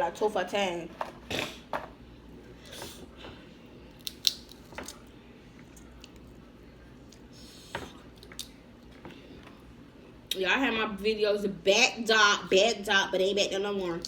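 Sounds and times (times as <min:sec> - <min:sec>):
crab shells cracking: 0:03.9 - 0:05.1.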